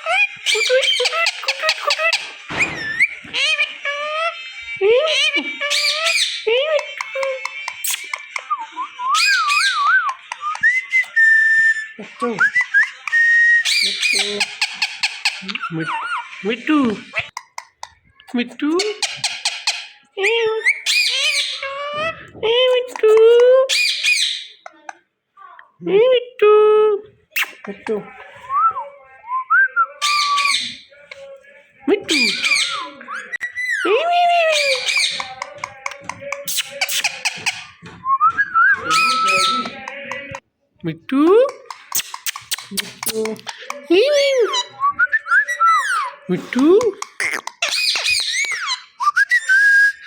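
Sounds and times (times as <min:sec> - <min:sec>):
parrot screeching: 0:00.0 - 0:08.4, 0:09.0 - 0:10.4, 0:11.0 - 0:16.4, 0:18.8 - 0:22.3, 0:23.7 - 0:24.7, 0:30.0 - 0:30.9, 0:32.1 - 0:37.8, 0:38.7 - 0:39.8, 0:47.0 - 0:50.0
parrot whistling: 0:00.0 - 0:16.4, 0:20.6 - 0:22.0, 0:23.7 - 0:24.6, 0:29.9 - 0:30.9, 0:32.1 - 0:39.9, 0:41.5 - 0:46.2, 0:47.0 - 0:50.0.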